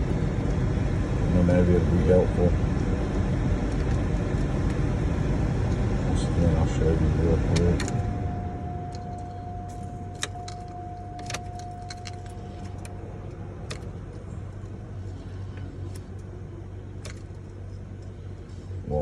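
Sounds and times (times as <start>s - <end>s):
low hum: 0.0s - 19.0s
steady tone: 0.0s - 19.0s
keys jangling in ignition: 8.8s - 14.8s, 16.9s - 18.2s.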